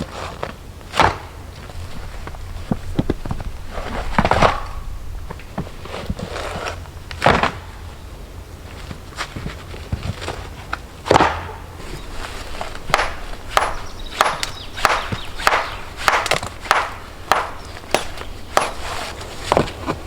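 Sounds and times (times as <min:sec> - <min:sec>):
hand tool chopping wood: 0:00.1 - 0:02.4, 0:05.6 - 0:07.8, 0:11.0 - 0:20.0.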